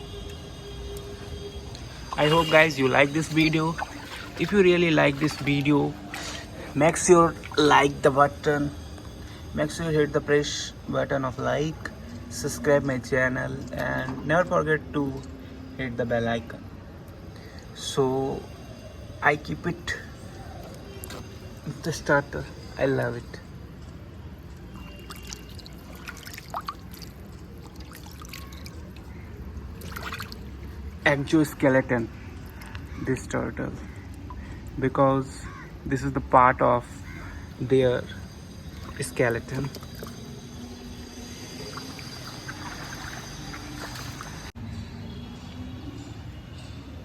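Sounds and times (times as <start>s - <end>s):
water dripping and plinking: 1.0s - 9.3s, 19.5s - 34.9s, 37.1s - 44.5s
water plop: 2.1s - 7.7s, 24.6s - 30.8s, 38.7s - 40.2s, 41.6s - 44.5s.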